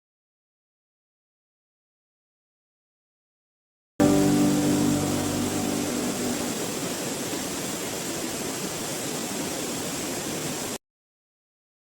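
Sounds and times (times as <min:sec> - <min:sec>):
waterfall rushing: 0:04.0 - 0:10.8.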